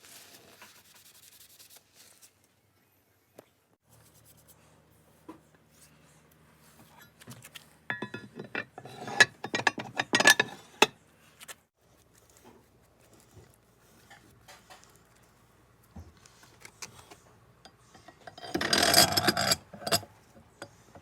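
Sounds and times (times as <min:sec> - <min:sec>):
metal parts clicking and clinking: 0:07.9 - 0:10.9, 0:18.0 - 0:20.1.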